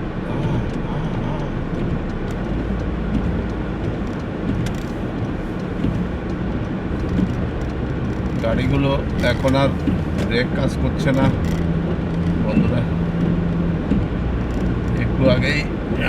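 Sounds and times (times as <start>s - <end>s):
car engine and tyre rumble: 0.0s - 16.0s
faint ticks: 1.4s - 10.4s, 11.2s - 12.4s.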